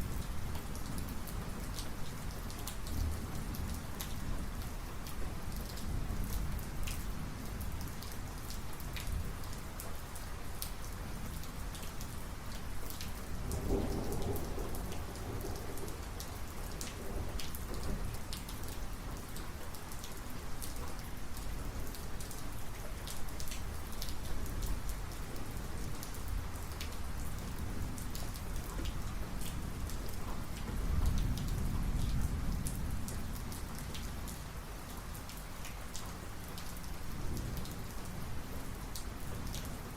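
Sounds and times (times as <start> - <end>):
heavy rain falling: 0.0 - 39.9
raindrops striking close by: 0.0 - 39.9
thunder rumbling: 13.4 - 16.4.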